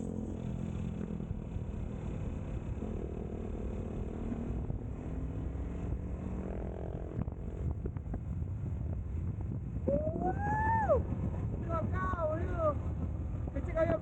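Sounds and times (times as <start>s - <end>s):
motorcycle engine running: 0.0s - 14.0s
wind on microphone: 4.2s - 14.0s.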